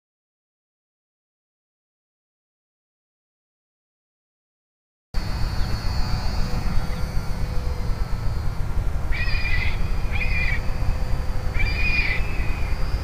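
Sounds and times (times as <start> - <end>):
steady low rumble: 5.2 - 13.0
harsh bird calls: 9.1 - 13.0.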